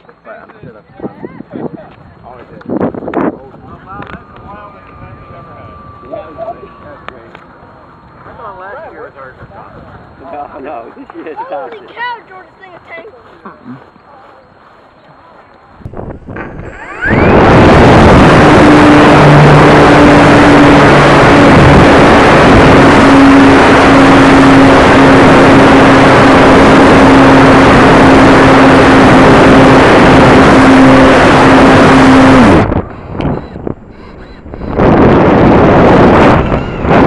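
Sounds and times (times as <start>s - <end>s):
loud wind rush over microphone: 0.6s - 7.1s, 15.8s - 37.0s
motor and propeller hum: 2.2s - 12.0s, 15.8s - 37.0s.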